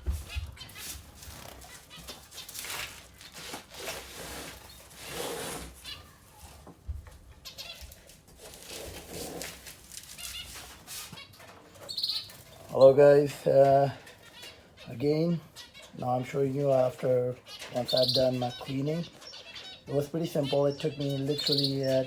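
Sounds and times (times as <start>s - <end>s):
rustling and scraping: 0.0s - 14.9s
finches giving nasal calls: 11.2s - 22.0s.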